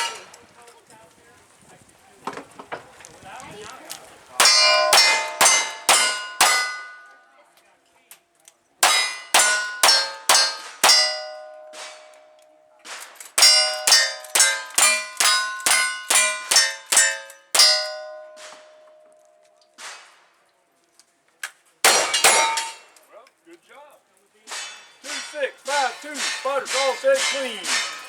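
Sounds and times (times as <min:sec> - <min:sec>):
bullet clanging on steel target: 0:00.0 - 0:00.4, 0:04.4 - 0:07.2, 0:08.8 - 0:20.0, 0:21.9 - 0:23.0.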